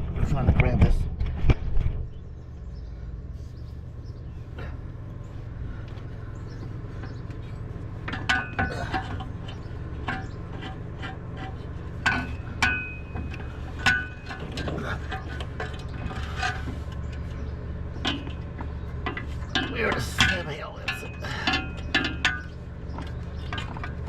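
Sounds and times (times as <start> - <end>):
steady low hum: 0.0 - 24.0
metallic clinks and knocks: 18.0 - 24.0.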